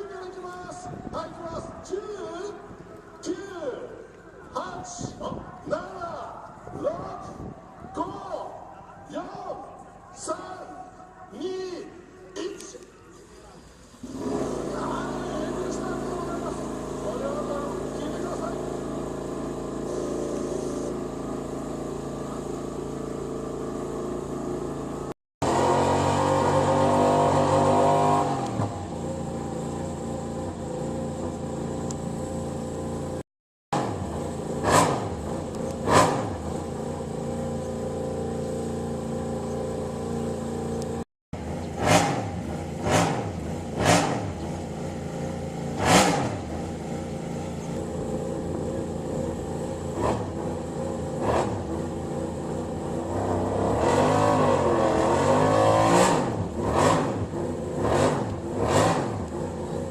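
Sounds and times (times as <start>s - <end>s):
motorcycle engine running: 13.9s - 59.9s.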